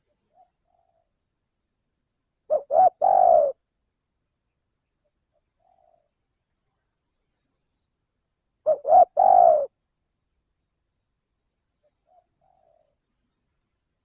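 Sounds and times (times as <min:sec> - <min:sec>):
dove cooing: 0:00.0 - 0:01.1, 0:02.5 - 0:03.6, 0:05.3 - 0:06.1, 0:08.6 - 0:09.8, 0:11.9 - 0:13.0.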